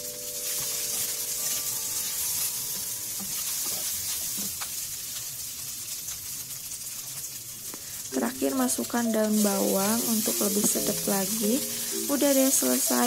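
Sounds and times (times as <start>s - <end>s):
rice sizzling in a frying pan: 0.0s - 13.0s
wooden spatula scraping a pan: 0.4s - 4.6s.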